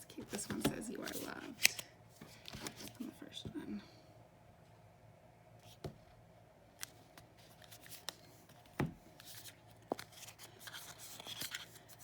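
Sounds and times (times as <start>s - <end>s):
papery rustling of cards: 6.8s - 12.0s.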